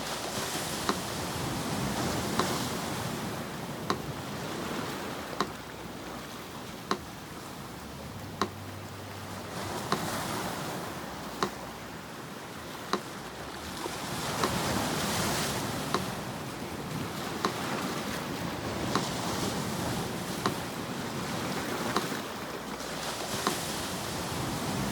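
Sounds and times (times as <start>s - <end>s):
sea surf washing: 0.0s - 24.9s
metronome ticking: 0.8s - 22.2s.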